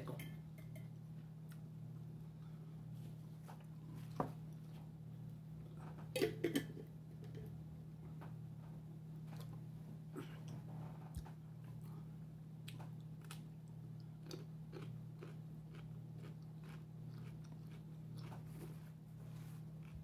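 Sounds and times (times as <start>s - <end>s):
pickle crunching while chewed: 12.6s - 18.8s.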